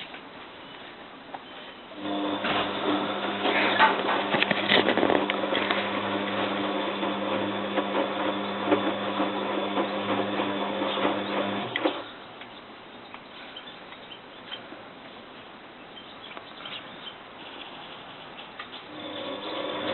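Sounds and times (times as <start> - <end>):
washing machine drum humming: 2.0 - 12.0, 18.9 - 19.9.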